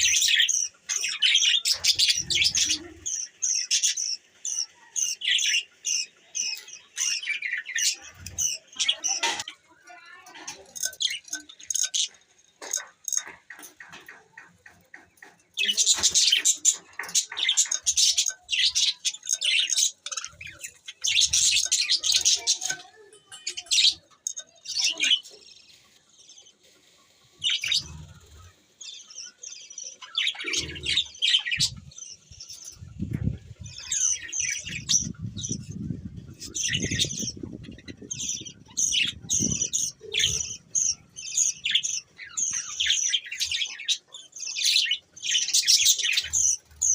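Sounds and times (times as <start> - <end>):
budgerigars chattering: 10.6 - 22.8, 27.4 - 46.9.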